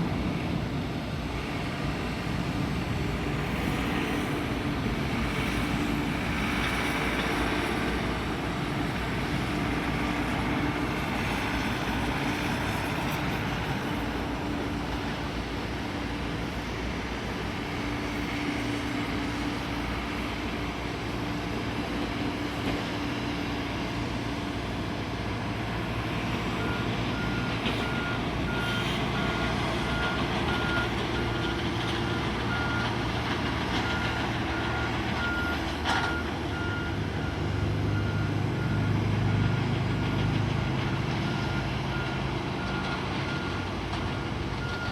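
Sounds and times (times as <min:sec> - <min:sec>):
vehicle engine hum: 0:00.0 - 0:44.9
reversing alarm beeping: 0:26.6 - 0:33.1, 0:33.7 - 0:39.7, 0:44.6 - 0:44.9.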